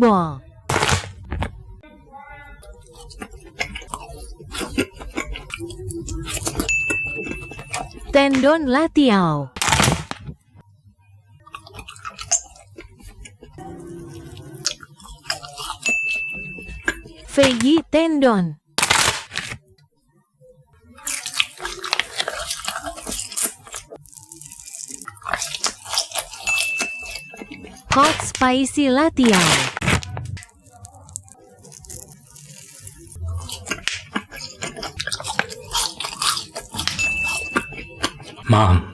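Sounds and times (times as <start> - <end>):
close-up chewing: 2.6 - 8.2, 11.4 - 17.3, 21.0 - 28.0, 30.4 - 38.5.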